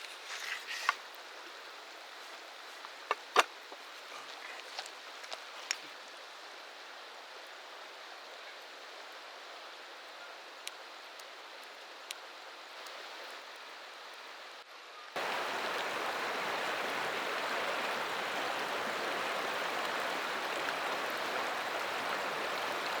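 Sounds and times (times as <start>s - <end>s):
river water rushing: 15.2s - 23.0s.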